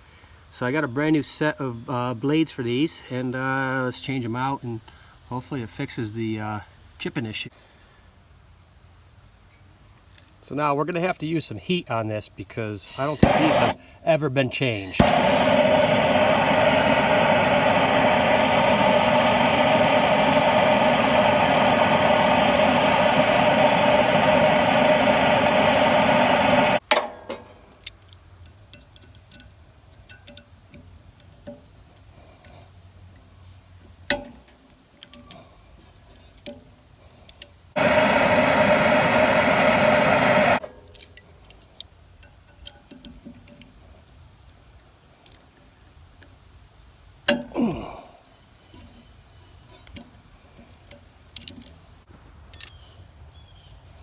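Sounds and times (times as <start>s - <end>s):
gas torch flame hissing: 12.8s - 13.9s, 14.6s - 26.8s, 37.8s - 40.7s
metal tool clicks and clinks: 52.5s - 52.9s.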